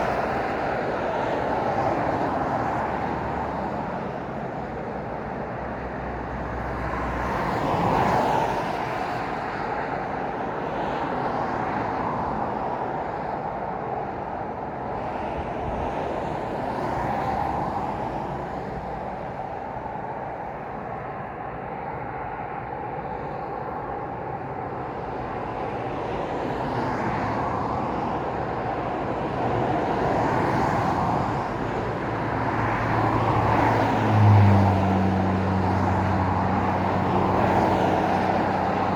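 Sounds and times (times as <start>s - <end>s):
road traffic passing: 15.0s - 38.9s.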